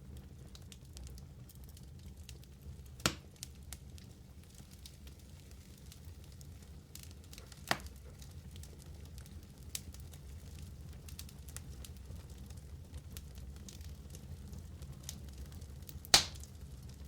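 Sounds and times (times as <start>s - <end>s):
fire crackling: 0.0s - 17.0s
wood fire low rumble: 0.0s - 17.0s
fire sharp pops: 2.3s - 3.9s, 4.5s - 11.3s, 15.8s - 16.6s.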